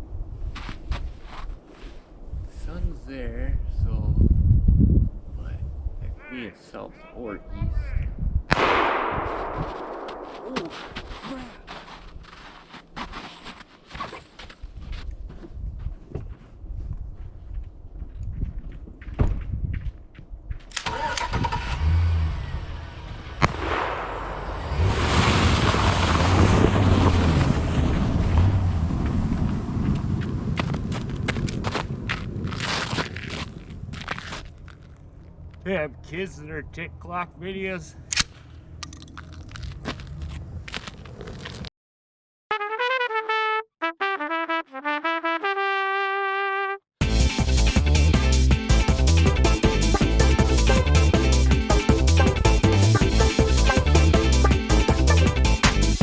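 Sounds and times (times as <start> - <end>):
crunching footsteps: 0.6 - 2.1, 9.1 - 20.7, 29.0 - 35.7, 38.2 - 41.7
brief rustling: 9.4 - 15.1
vehicle engine humming: 21.6 - 31.1
trumpet-like brass tune: 42.5 - 47.4, 48.0 - 55.7
electronic music with heavy beat: 47.0 - 56.0.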